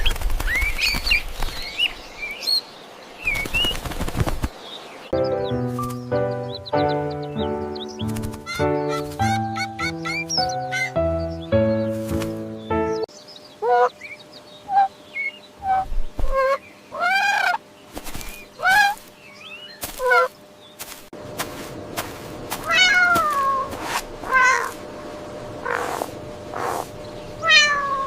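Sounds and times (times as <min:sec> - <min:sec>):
cat meowing: 0:22.6 - 0:24.8, 0:27.4 - 0:28.0.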